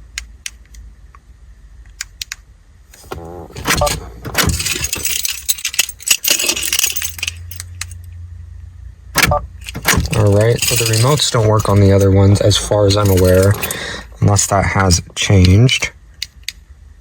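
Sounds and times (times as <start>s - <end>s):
car keys jangling: 3.0s - 8.0s, 9.2s - 14.2s.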